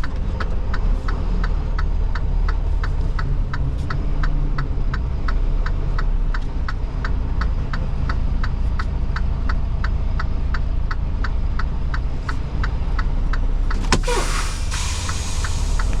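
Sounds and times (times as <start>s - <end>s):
diesel engine rumbling: 0.0s - 16.0s
turn signal clicker ticking: 0.0s - 16.0s
loud air hiss: 14.0s - 16.0s.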